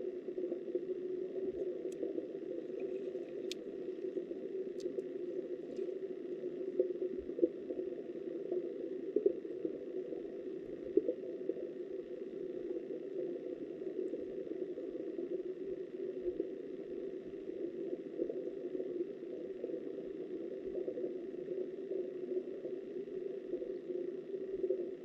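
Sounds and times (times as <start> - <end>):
muffled underwater river rush: 0.2 - 25.0
faint sharp ticks: 1.5 - 7.6.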